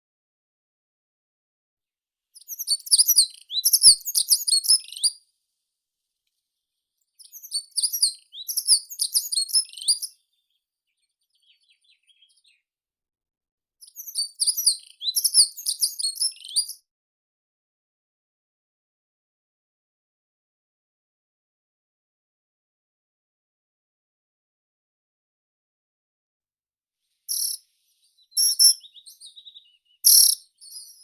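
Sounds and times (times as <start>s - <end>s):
songbird warbling: 2.5s - 5.1s, 27.3s - 31.0s.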